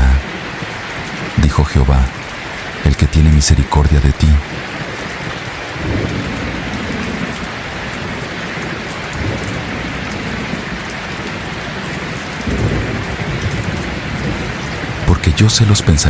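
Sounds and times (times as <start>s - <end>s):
heavy rainfall: 0.0s - 16.0s
thunder rumbling: 4.2s - 16.0s.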